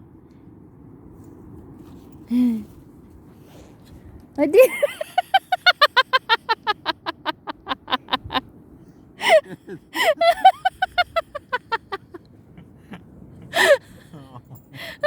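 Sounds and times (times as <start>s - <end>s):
woman laughing hard: 4.6s - 8.4s, 9.2s - 12.2s, 13.5s - 15.0s.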